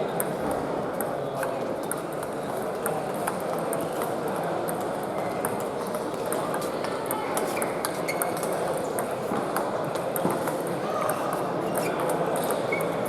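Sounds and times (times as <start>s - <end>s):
murmur of busy hall: 0.0s - 13.0s.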